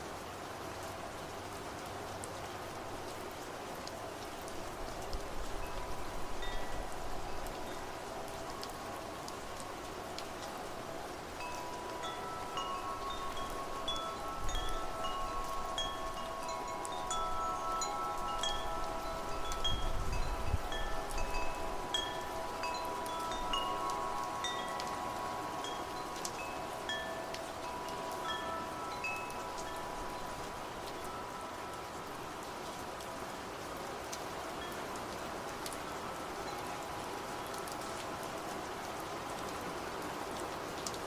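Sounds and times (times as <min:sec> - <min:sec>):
rain hiss: 0:00.0 - 0:41.0
wind chimes ringing: 0:05.4 - 0:32.6
wind gusts on microphone: 0:10.5 - 0:37.1.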